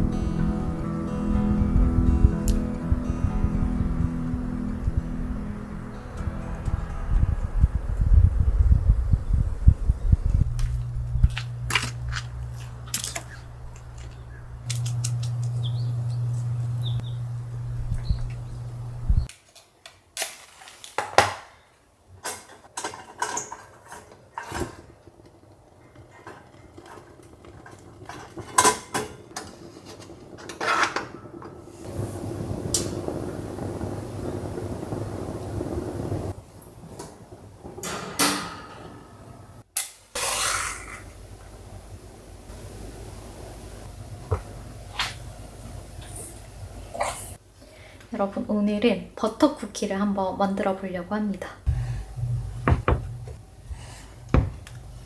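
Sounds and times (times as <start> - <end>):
low steady hum: 0.0 - 19.3, 51.6 - 55.0.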